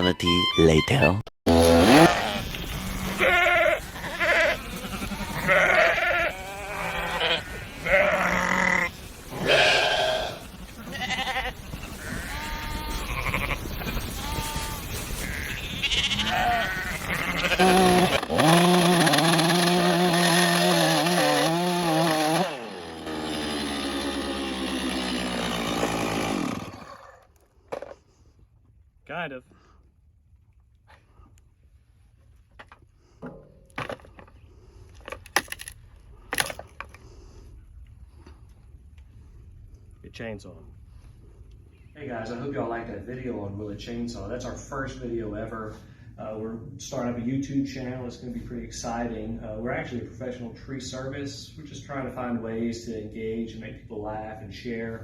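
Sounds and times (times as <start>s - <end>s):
sheep bleating: 1.5s - 18.1s.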